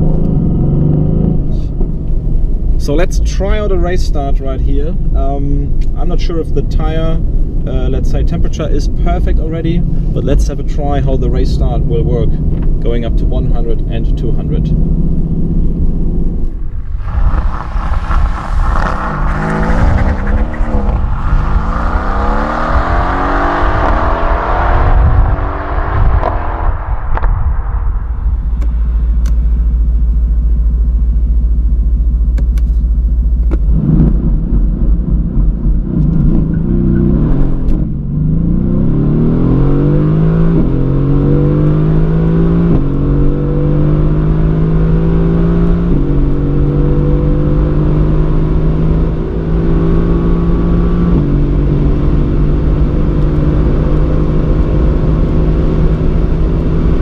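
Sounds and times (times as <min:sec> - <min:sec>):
car engine idling: 0:00.0 - 0:38.2
car engine accelerating hard: 0:00.0 - 0:57.0.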